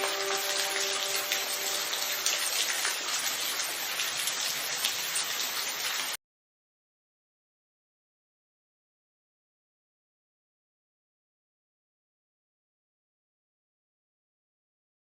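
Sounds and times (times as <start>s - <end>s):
held musical tone: 0.0s - 3.0s
steady rain falling: 0.0s - 6.2s.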